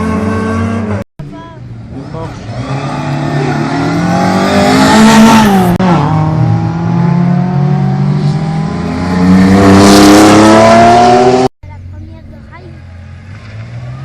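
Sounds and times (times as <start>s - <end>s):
rally car engine revving: 0.0s - 1.0s, 1.8s - 11.5s.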